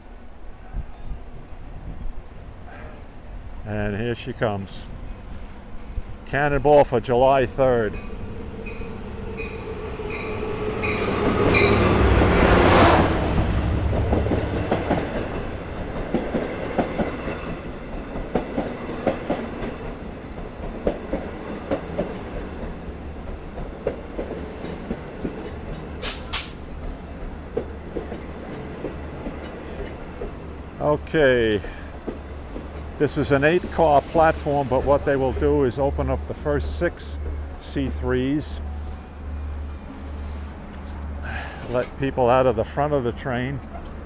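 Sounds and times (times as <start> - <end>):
diesel locomotives passing: 0.0 - 44.0
train wheels clicking over rail joints: 7.9 - 30.8, 31.5 - 35.4
short hiss: 26.0 - 26.6, 33.3 - 35.4, 41.2 - 42.0.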